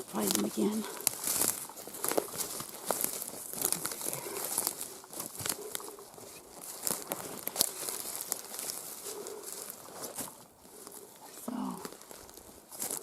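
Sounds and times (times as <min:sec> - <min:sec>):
rustling and crackling: 0:00.0 - 0:13.0.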